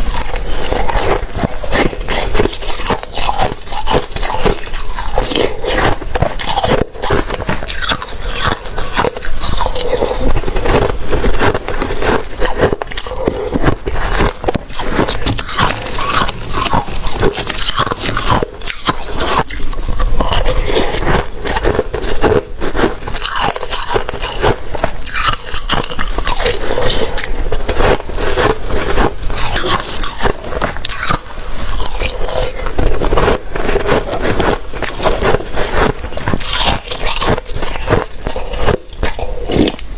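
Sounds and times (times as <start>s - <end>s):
crunching slushy ice: 0.0s - 39.9s.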